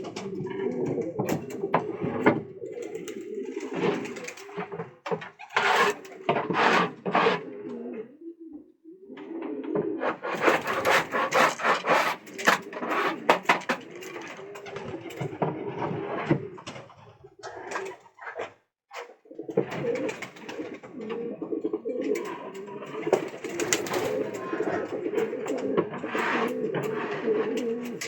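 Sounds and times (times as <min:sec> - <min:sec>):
pigeons cooing: 0:00.0 - 0:28.0
scratchy rustling: 0:05.4 - 0:07.4, 0:10.0 - 0:13.8.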